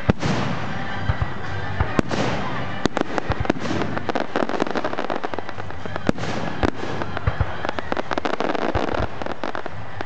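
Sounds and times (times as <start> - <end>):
fireworks bangs and crackling: 0.0 - 10.0.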